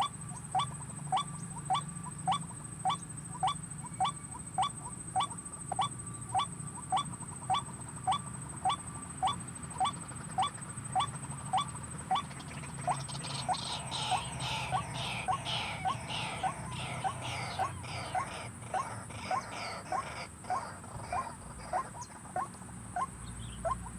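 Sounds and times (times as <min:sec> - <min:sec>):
waterhen calling: 0:00.0 - 0:23.9.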